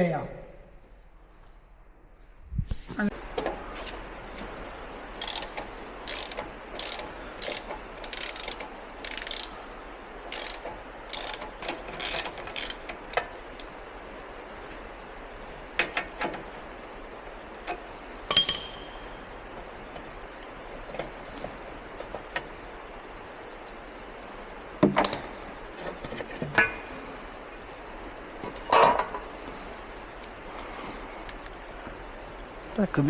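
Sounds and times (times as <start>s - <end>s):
metallic ratchet clicking: 5.2s - 9.6s, 10.3s - 13.0s.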